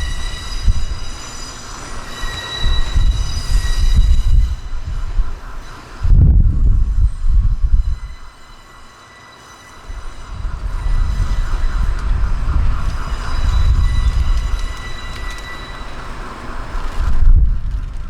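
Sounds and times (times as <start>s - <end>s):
steady high whine: 0.0s - 18.0s
train rumbling past: 0.0s - 18.0s.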